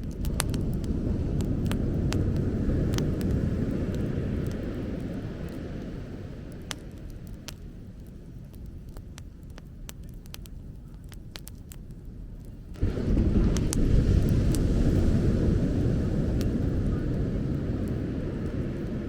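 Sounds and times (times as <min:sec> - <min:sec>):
sharp pops: 0:00.0 - 0:04.7
bonfire crackling: 0:00.0 - 0:19.0
low rumble of fire: 0:00.0 - 0:19.0.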